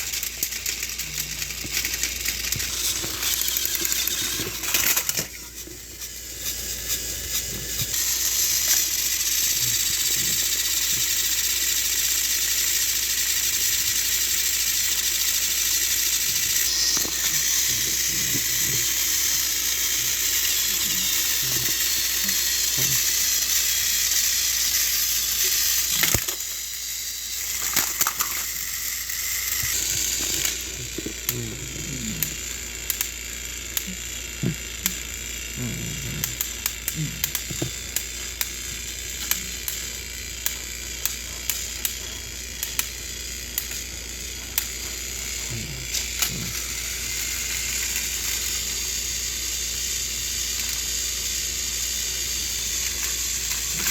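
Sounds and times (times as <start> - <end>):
wheels clicking on plastic track: 0.0 - 31.4, 32.2 - 53.9
toy train motors whirring: 0.0 - 53.9.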